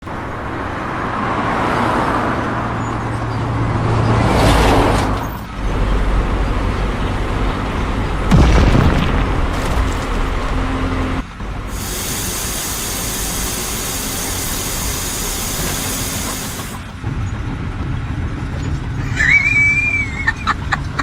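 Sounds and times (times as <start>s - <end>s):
diesel machinery rumbling: 0.0s - 21.0s
low thud: 8.3s - 11.0s.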